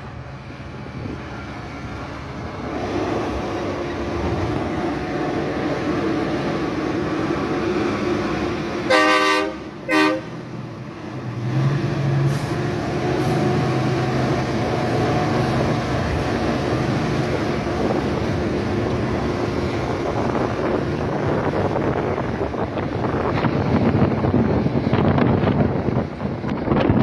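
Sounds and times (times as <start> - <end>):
diesel truck engine under load: 9.7 - 27.0.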